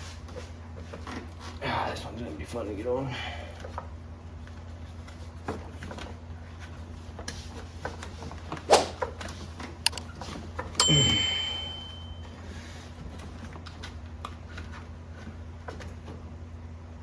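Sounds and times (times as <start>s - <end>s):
steady low hum: 10.7s - 17.0s
ringing metallic clank: 10.8s - 12.3s.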